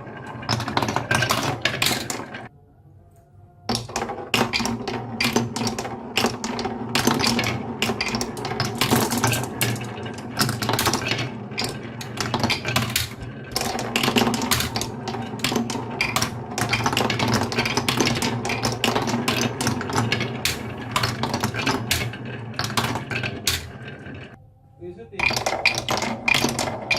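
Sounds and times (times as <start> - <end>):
marbles clicking and clacking: 0.0 - 2.5, 3.7 - 24.4, 25.2 - 26.9
marbles rolling rumble: 0.0 - 2.5, 3.7 - 24.4, 25.2 - 26.9.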